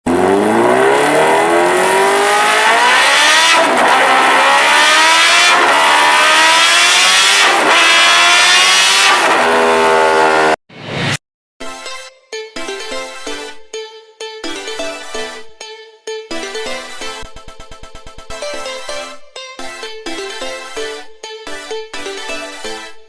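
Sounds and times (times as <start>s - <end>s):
motorcycle engine accelerating: 0.0s - 11.2s.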